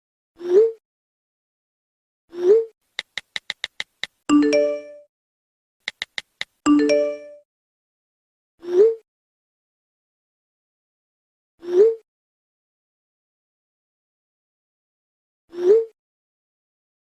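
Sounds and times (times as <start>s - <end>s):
quick typing clicks: 3.0s - 4.3s, 5.8s - 6.6s
bell-like notification chime: 4.3s - 5.1s, 6.7s - 7.4s.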